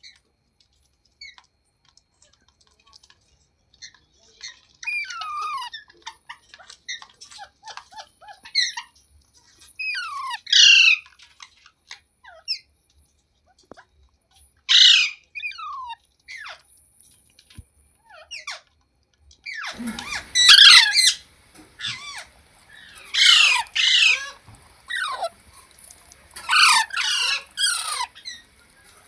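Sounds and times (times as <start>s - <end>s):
parrot chirping and chattering: 1.1s - 1.6s, 2.2s - 12.8s, 14.5s - 16.7s, 17.3s - 18.8s, 19.4s - 29.0s
parrot squawks: 3.8s - 9.0s, 9.8s - 11.1s, 14.7s - 16.6s, 18.0s - 18.7s, 19.4s - 25.5s, 26.4s - 29.0s.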